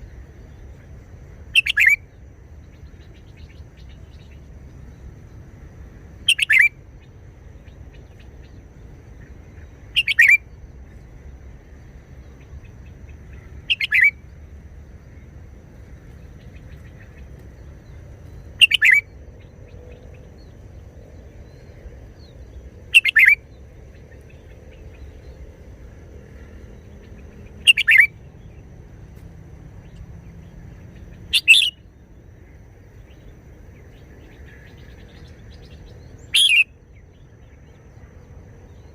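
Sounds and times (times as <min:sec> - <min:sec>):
bird singing short phrases: 0:01.6 - 0:02.0, 0:09.9 - 0:10.4, 0:13.3 - 0:14.2, 0:18.3 - 0:19.1, 0:22.9 - 0:23.4, 0:27.6 - 0:28.1, 0:31.0 - 0:31.9, 0:33.9 - 0:36.8.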